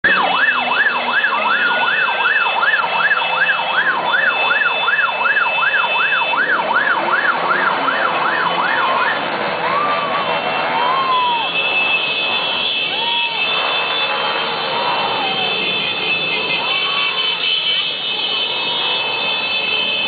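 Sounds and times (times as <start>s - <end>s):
siren wails: 0.0s - 20.0s
siren yelp: 0.0s - 20.0s.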